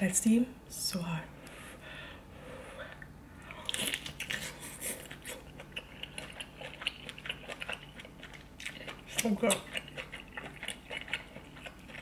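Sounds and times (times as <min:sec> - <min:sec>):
person chewing food: 0:02.7 - 0:12.0.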